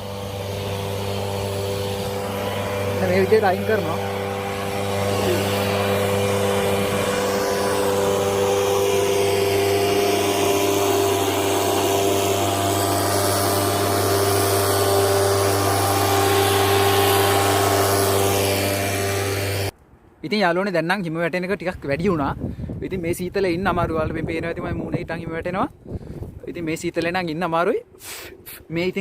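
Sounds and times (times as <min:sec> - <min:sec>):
engine humming steadily: 0:00.0 - 0:19.8.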